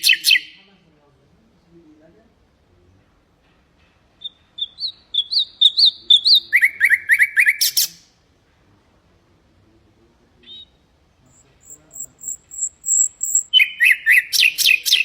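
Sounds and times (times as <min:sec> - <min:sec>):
nightingale singing: 0:00.0 - 0:00.7, 0:04.2 - 0:08.2, 0:10.4 - 0:15.0.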